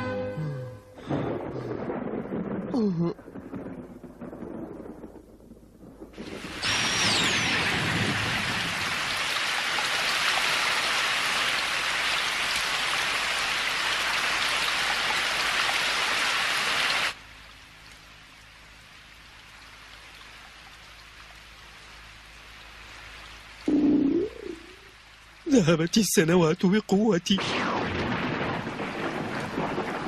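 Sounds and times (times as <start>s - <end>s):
heavy rain hissing: 6.2s - 30.0s.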